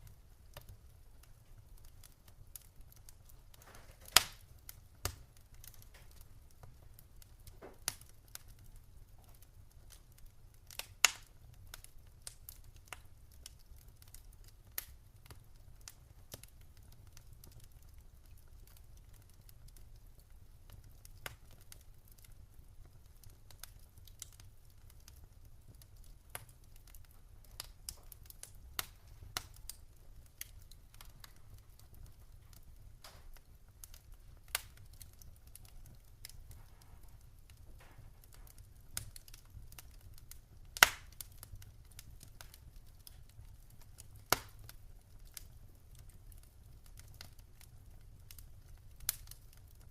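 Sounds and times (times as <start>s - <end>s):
wood fire crackling: 0.0s - 49.9s
sharp pops of fire: 1.8s - 8.6s, 10.7s - 17.7s, 25.7s - 45.5s.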